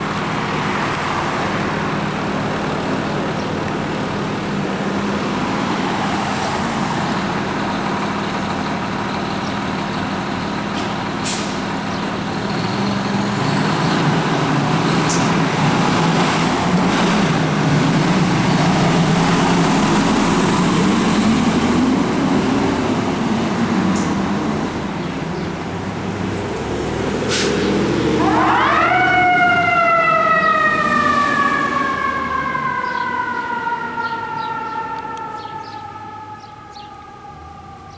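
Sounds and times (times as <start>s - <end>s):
fire truck diesel engine: 0.0s - 37.9s
siren winding up: 30.8s - 37.4s.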